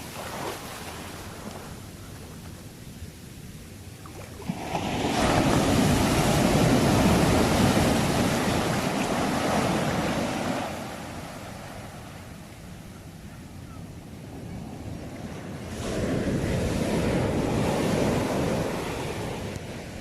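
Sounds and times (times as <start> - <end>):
sea wave breaking on shore: 4.2 - 12.0.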